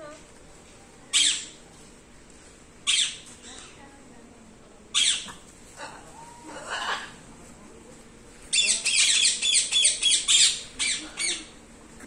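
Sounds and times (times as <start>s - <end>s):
bird squawking: 8.6s - 11.5s.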